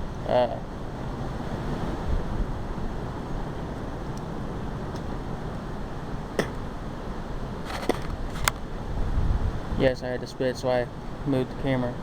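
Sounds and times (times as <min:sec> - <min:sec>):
strong wind on microphone: 0:00.8 - 0:03.8, 0:07.5 - 0:10.0.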